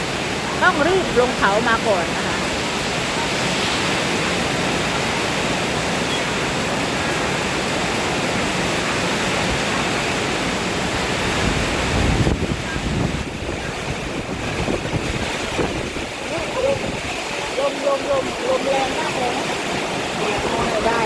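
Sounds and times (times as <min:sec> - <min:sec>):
heavy rain: 0:00.0 - 0:21.0
wind buffeting microphone: 0:09.0 - 0:21.0.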